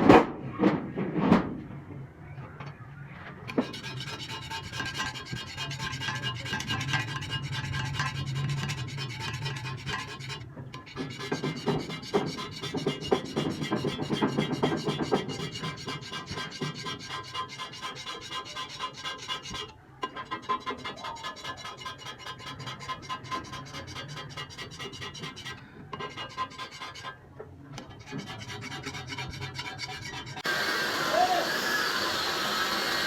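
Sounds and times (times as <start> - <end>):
metal rasping on metal: 3.5 - 27.2, 27.8 - 33.0.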